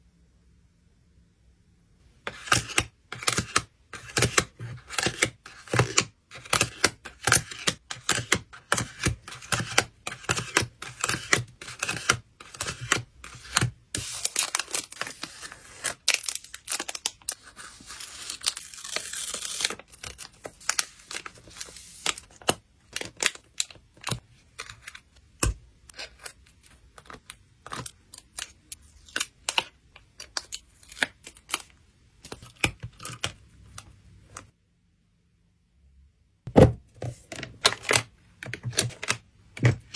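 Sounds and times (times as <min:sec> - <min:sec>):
packing material tearing: 0:14.1 - 0:22.3.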